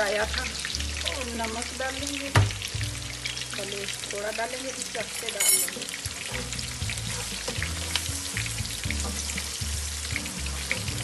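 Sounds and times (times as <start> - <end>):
onions sizzling in hot oil: 0.0 - 11.0
metal spatula scraping pan: 5.2 - 8.1.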